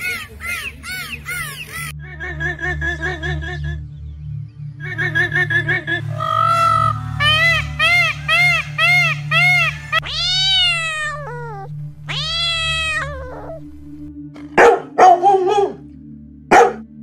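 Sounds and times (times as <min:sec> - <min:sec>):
peacock honking: 0:00.0 - 0:02.0, 0:05.9 - 0:14.0
low steady drone: 0:00.0 - 0:17.0
cat meowing: 0:09.4 - 0:13.8
dog barking: 0:14.6 - 0:15.8, 0:16.5 - 0:16.9.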